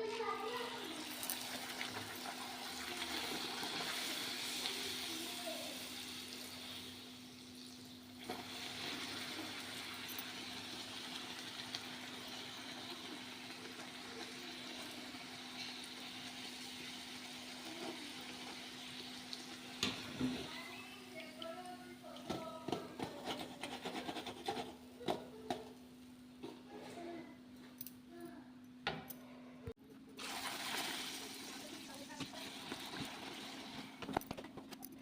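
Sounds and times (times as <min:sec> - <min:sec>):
deep-frying sizzle in hot oil: 0:00.6 - 0:21.4.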